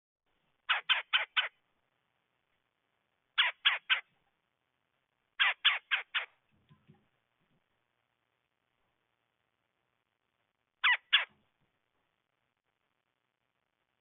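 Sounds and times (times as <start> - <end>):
woodpecker harsh calls: 0.7 - 1.6, 3.4 - 4.1, 5.4 - 6.4, 10.8 - 11.4.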